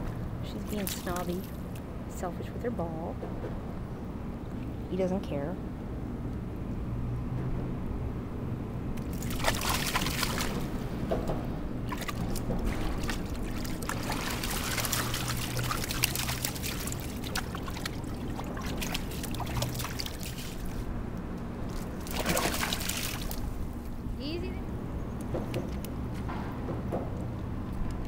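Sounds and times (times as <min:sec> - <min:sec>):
steady low rumble: 0:00.0 - 0:28.0
river water splashing: 0:09.0 - 0:11.1, 0:11.8 - 0:21.0, 0:21.6 - 0:24.0.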